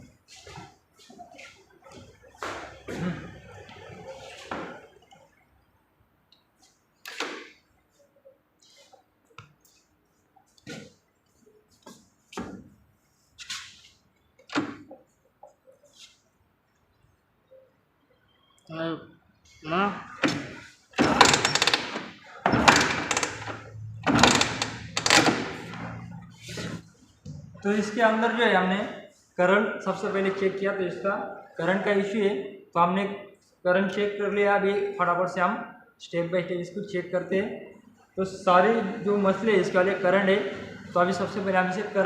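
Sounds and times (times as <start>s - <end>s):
clattering mechanical noise: 20.2s - 27.6s.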